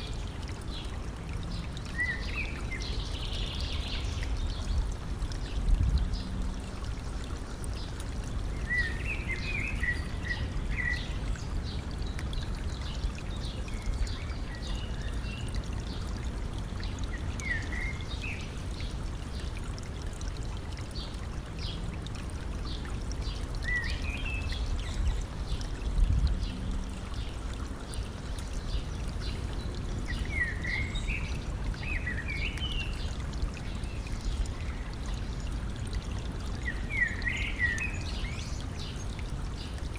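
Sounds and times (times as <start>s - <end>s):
stream trickling: 0.0s - 39.9s
bird singing chirping phrases: 1.5s - 4.8s, 8.6s - 16.0s, 27.9s - 35.3s, 36.6s - 39.8s.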